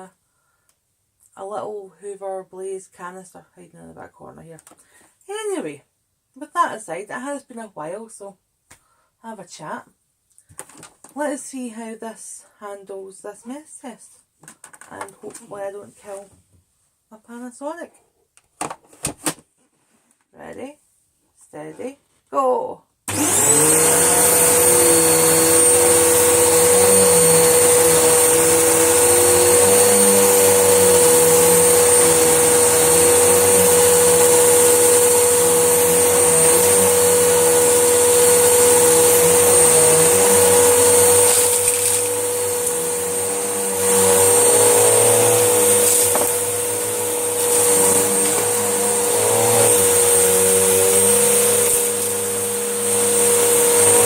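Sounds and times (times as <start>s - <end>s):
vacuum cleaner motor whine: 23.1s - 54.0s.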